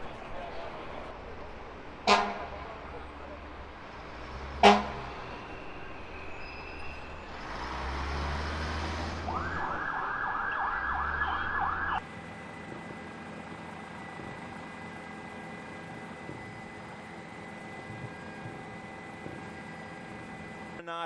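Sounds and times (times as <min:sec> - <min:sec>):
street traffic noise: 0:00.0 - 0:21.0
emergency siren yelping: 0:09.2 - 0:12.0.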